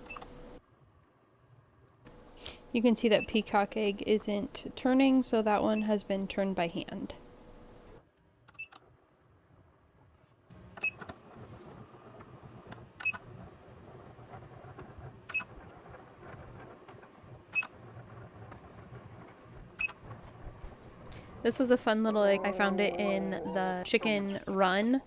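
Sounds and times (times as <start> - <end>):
low steady hum: 0.0 - 8.0, 15.6 - 25.0.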